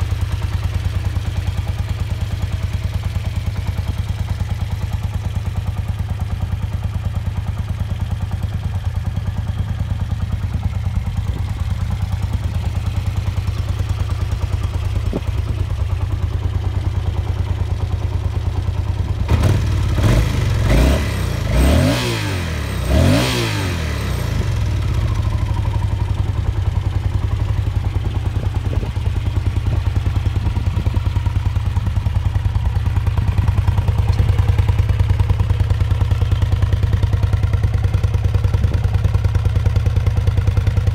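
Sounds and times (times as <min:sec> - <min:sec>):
motorcycle engine revving and idling: 0:00.0 - 0:40.9.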